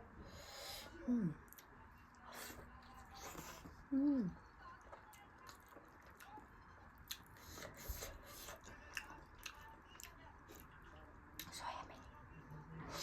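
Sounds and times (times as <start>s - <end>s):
chewing dumpling: 1.3s - 13.0s.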